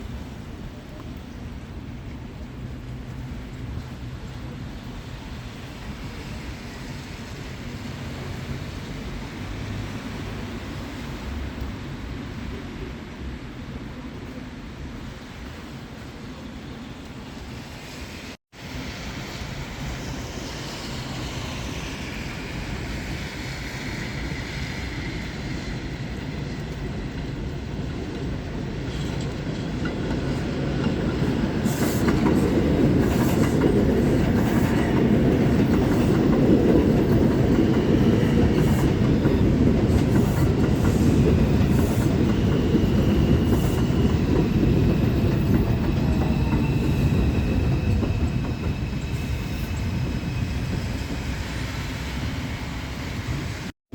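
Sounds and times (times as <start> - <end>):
subway train rumbling: 0.0 - 53.8
wheels clicking over rail joints: 26.1 - 49.2
wheel squeal: 39.9 - 53.6.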